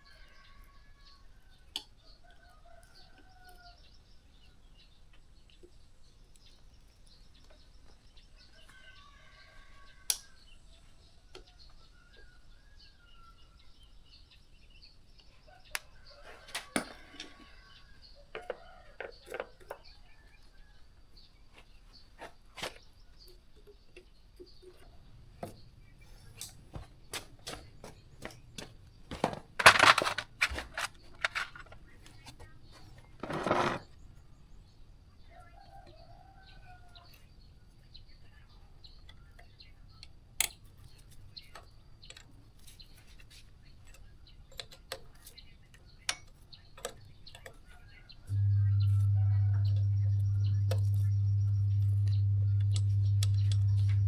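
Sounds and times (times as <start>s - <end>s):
hard objects clicking and knocking: 26.5s - 32.5s
low electric machine hum: 48.3s - 54.0s.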